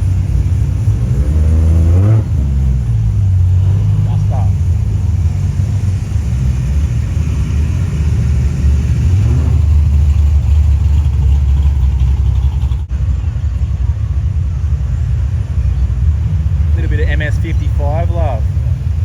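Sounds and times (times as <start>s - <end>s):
car engine revving: 0.0s - 13.0s
car engines rumbling in traffic: 0.0s - 19.0s.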